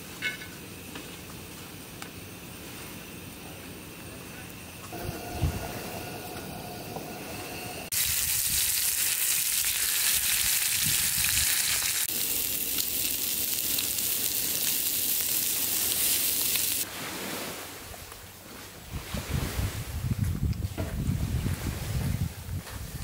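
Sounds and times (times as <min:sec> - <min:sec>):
food sizzling in a pan: 0:05.0 - 0:16.9.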